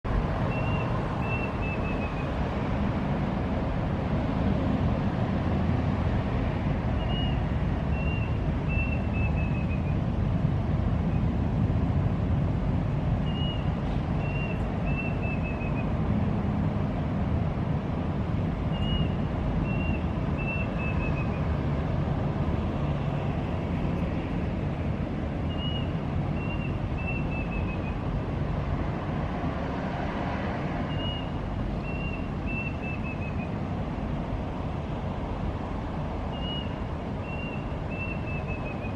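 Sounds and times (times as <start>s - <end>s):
bird calling: 0.5s - 2.3s, 7.0s - 10.0s, 13.2s - 15.9s, 18.7s - 21.4s, 25.5s - 28.0s, 30.9s - 33.6s, 36.3s - 38.9s.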